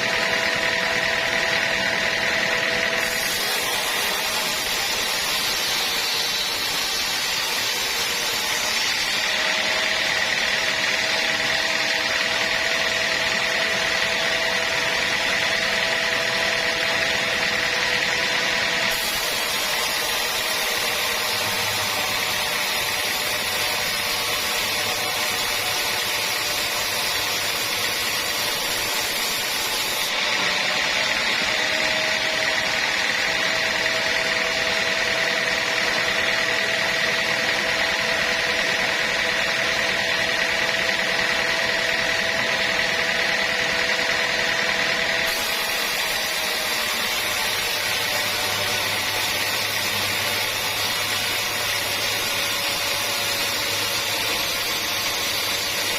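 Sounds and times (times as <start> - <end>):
sawmill machinery whining: 0.0 - 55.9.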